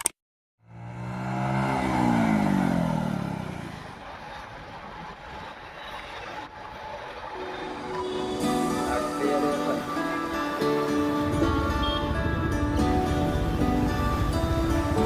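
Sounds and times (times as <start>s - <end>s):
vehicle engine accelerating: 0.6s - 7.6s
road hum: 0.6s - 15.0s.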